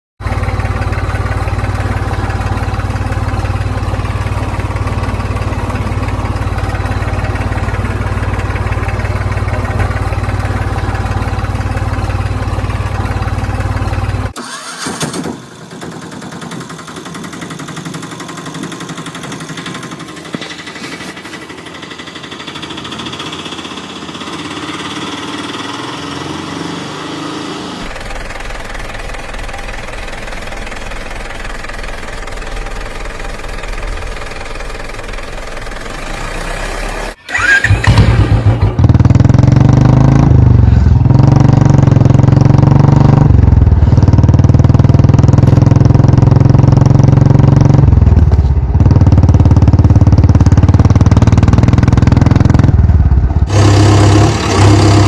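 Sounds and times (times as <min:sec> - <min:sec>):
loud engine humming: 0:00.2 - 0:55.0
motor running: 0:53.4 - 0:55.0.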